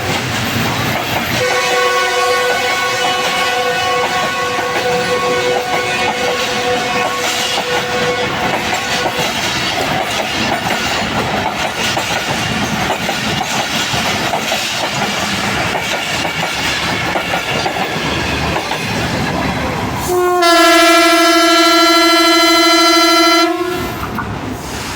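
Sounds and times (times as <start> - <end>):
train wheels clattering: 0.0 - 19.6
locomotive horn blast: 1.4 - 9.3, 20.0 - 24.2.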